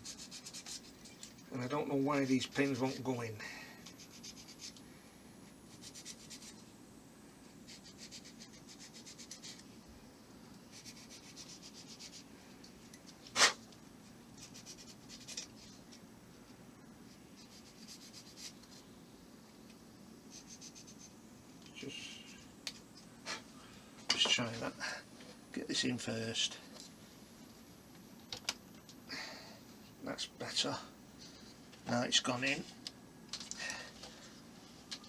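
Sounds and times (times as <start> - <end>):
hand sanding rasping strokes: 0.0 - 0.9, 1.8 - 3.2, 3.9 - 4.8, 5.7 - 6.6, 7.7 - 9.6, 10.7 - 12.3.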